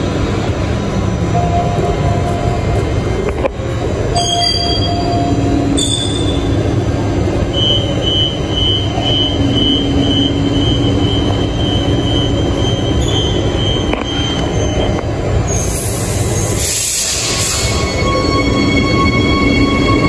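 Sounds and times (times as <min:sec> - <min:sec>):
train humming: 0:00.0 - 0:20.0
air hissing: 0:15.6 - 0:17.8.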